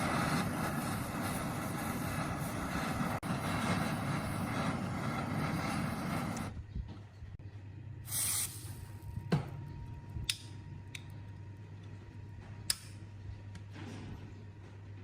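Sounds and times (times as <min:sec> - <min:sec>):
steady low hum: 0:00.0 - 0:15.0
spray hiss: 0:08.1 - 0:08.9.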